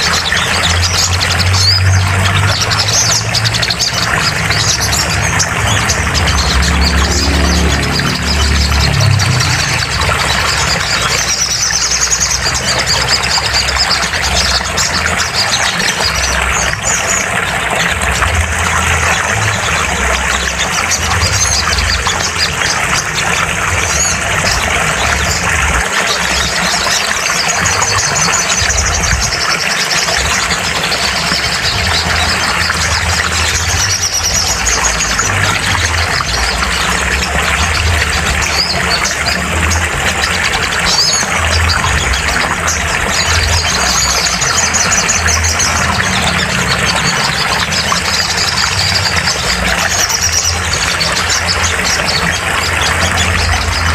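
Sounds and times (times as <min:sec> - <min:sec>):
songbirds chirping and trilling: 0:00.0 - 0:53.9.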